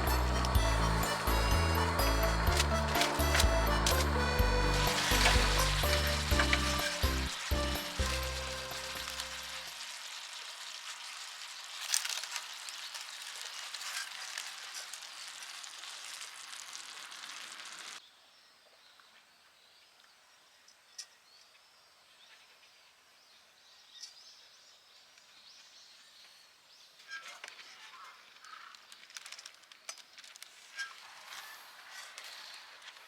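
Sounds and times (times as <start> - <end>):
thin high chirps: 0.0 - 10.0
outdoor ambience: 0.0 - 23.2, 23.9 - 33.0
food sizzling in a pan: 4.7 - 18.0.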